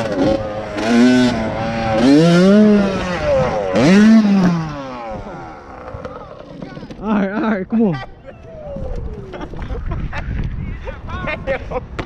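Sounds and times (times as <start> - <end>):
dirt bike engine revving: 0.0 - 7.0.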